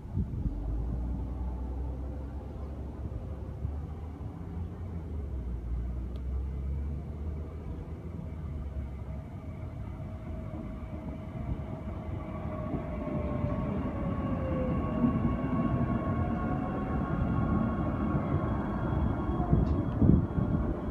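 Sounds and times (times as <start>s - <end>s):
train wheels rumbling: 6.6s - 20.9s
train motor whine: 8.1s - 20.9s.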